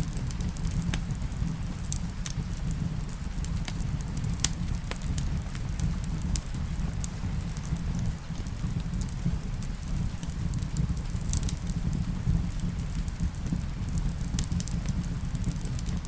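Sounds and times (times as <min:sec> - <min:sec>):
sharp pops from fire: 0:00.0 - 0:16.0
steady low rumble: 0:00.0 - 0:16.0
steady rain: 0:00.0 - 0:16.0
wood fire crackling: 0:00.0 - 0:16.0.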